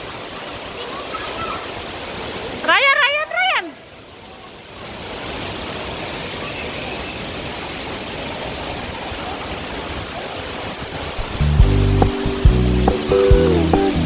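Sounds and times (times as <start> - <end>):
waterfall rushing: 4.8 - 14.0
music with strong bass line: 11.2 - 14.0.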